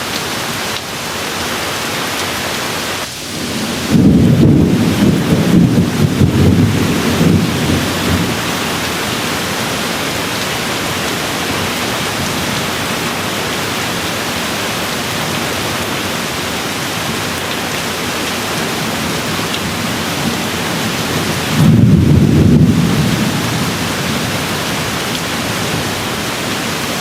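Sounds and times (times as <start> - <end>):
steady rain hiss: 0.0 - 27.0
low thunder rumble: 3.2 - 12.6, 18.4 - 27.0.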